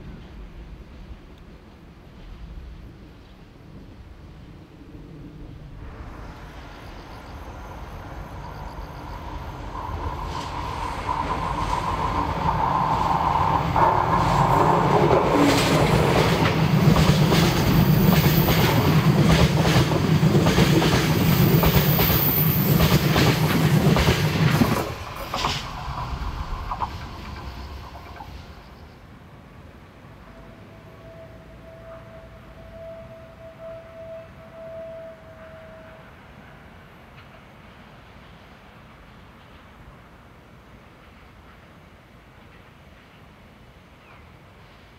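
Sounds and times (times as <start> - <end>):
diesel locomotive passing: 4.5 - 43.9
steady high tone: 5.8 - 16.8, 30.2 - 36.1.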